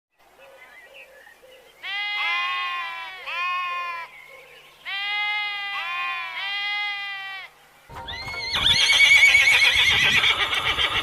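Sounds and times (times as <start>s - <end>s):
livestock bleating: 1.8s - 4.1s, 4.8s - 7.5s.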